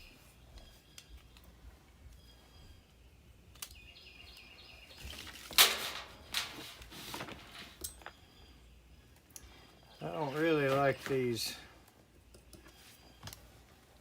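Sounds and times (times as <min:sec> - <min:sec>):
faint bird chirps: 0:00.0 - 0:05.4, 0:08.0 - 0:13.7
scraping and handling noises: 0:05.0 - 0:08.2.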